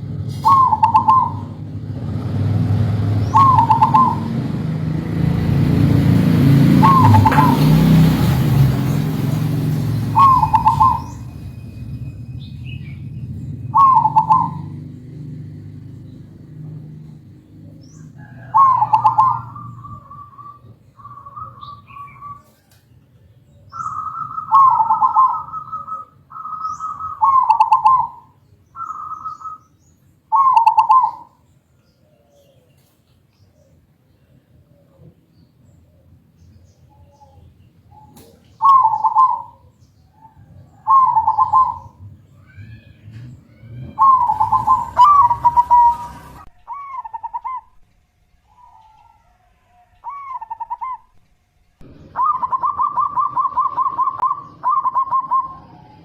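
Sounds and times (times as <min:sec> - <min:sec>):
dove cooing: 0:00.0 - 0:01.7, 0:03.2 - 0:04.8, 0:05.4 - 0:11.5, 0:13.2 - 0:22.7, 0:23.6 - 0:29.6, 0:30.3 - 0:31.4, 0:37.0 - 0:47.8, 0:48.5 - 0:51.2, 0:51.8 - 0:56.0
higher held dove notes: 0:00.4 - 0:01.6, 0:03.3 - 0:04.5, 0:06.4 - 0:11.5.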